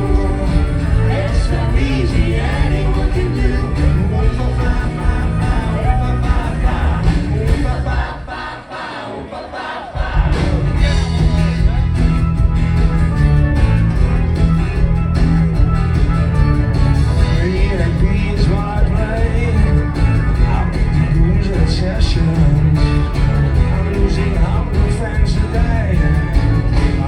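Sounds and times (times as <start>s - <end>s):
live rock band playing: 0.0s - 8.1s, 10.0s - 27.0s
person singing: 0.0s - 8.2s, 17.2s - 27.0s.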